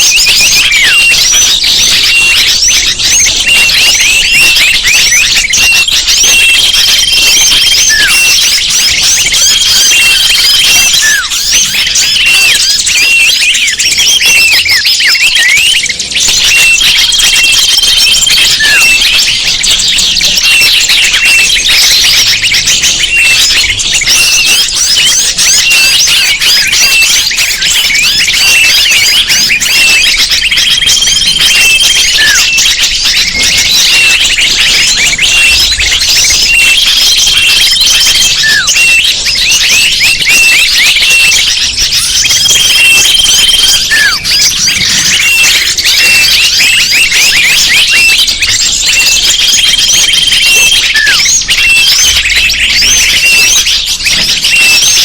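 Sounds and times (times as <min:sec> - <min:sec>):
small birds chirping: 0:00.0 - 0:55.0
held whistled note: 0:20.4 - 0:49.4.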